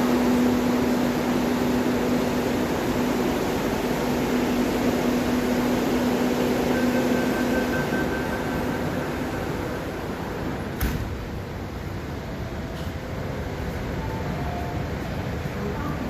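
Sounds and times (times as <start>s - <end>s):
train car hum and rush: 0.0s - 16.0s
low steady tone: 6.4s - 10.6s.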